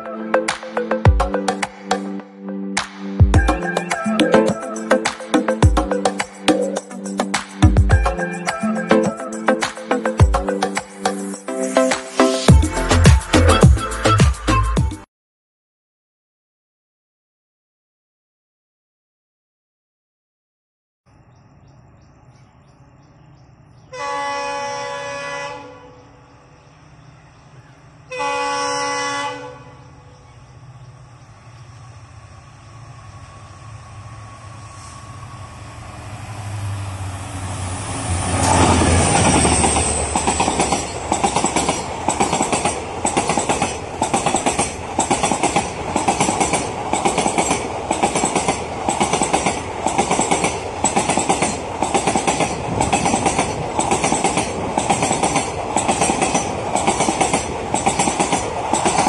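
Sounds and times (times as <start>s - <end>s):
train horn blast: 23.9s - 26.2s, 28.1s - 30.0s
diesel locomotive passing: 23.9s - 59.0s
wheels clattering over rail joints: 38.2s - 59.0s.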